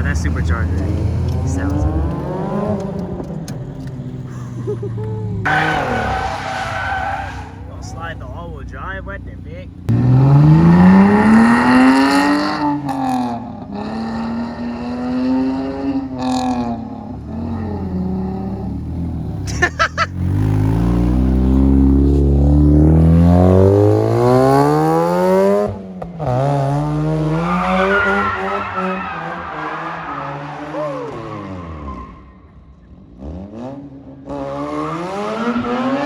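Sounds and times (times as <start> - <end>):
car engine revving hard: 0.0 - 3.3, 9.9 - 32.1, 33.0 - 36.0
tires squealing: 0.0 - 9.3, 27.0 - 32.8, 34.3 - 36.0.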